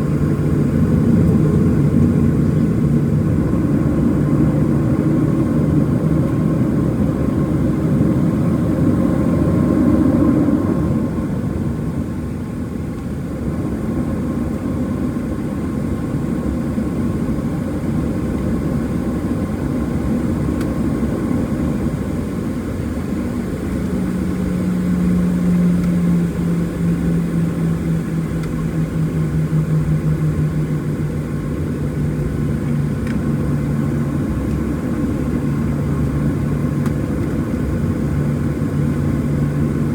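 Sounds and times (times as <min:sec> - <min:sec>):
aircraft cabin engine roar: 0:00.0 - 0:39.9
low droning tone: 0:24.3 - 0:36.8.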